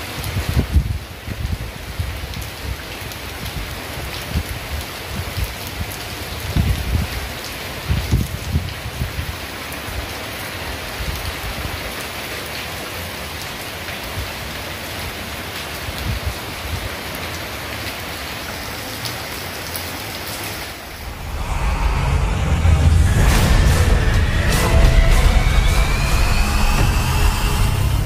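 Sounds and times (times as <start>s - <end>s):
heavy rain falling: 0.0s - 28.0s
loud deep sound: 20.8s - 28.0s.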